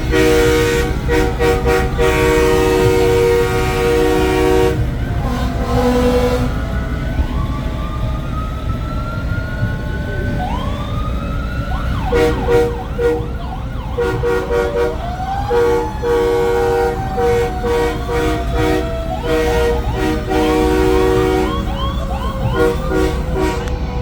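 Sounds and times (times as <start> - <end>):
short horn blasts: 0.0 - 6.6, 12.1 - 13.4, 14.0 - 21.8, 22.4 - 23.9
truck air horn chord: 0.0 - 6.8, 12.1 - 24.0
sirens winding up: 0.0 - 24.0.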